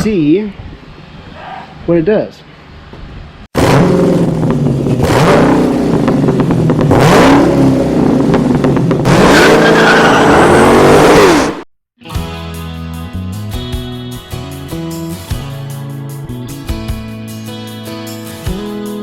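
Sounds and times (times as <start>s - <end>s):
racing car engines revving: 3.6s - 11.6s
tire squeal: 9.1s - 11.6s.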